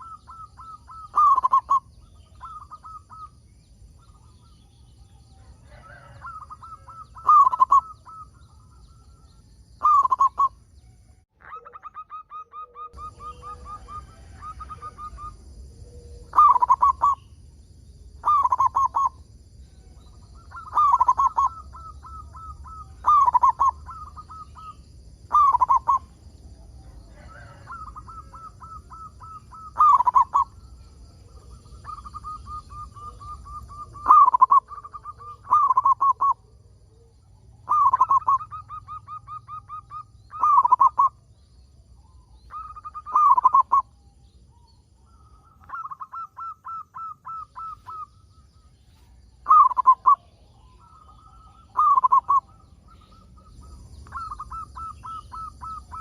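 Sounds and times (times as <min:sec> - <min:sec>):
dove cooing: 0:00.0 - 0:10.6, 0:11.4 - 0:17.4, 0:18.2 - 0:19.2, 0:19.8 - 0:41.3, 0:42.0 - 0:56.0.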